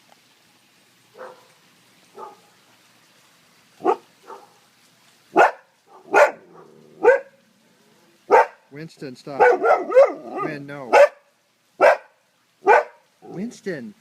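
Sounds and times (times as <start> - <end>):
dog barking: 1.2 - 1.5, 2.1 - 2.5, 3.8 - 4.6, 5.3 - 7.4, 8.3 - 8.6, 9.4 - 11.2, 11.8 - 13.0.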